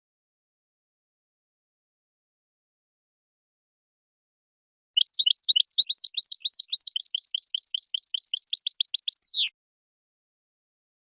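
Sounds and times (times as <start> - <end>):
goldfinch twittering song: 5.0 - 9.5.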